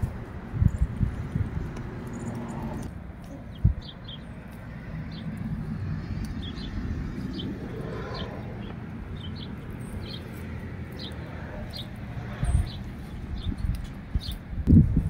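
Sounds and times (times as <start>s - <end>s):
small birds chirping: 0.0s - 14.7s
low background rumble: 0.0s - 15.0s.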